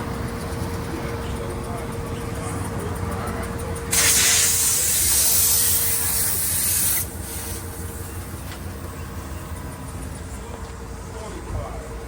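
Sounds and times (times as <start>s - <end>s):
pressurized air hissing: 3.9s - 7.8s.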